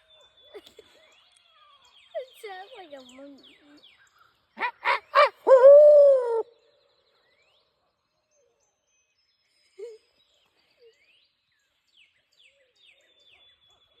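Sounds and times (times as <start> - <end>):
small birds chirping: 0.0 - 14.0
faint owl hoots: 4.6 - 6.5.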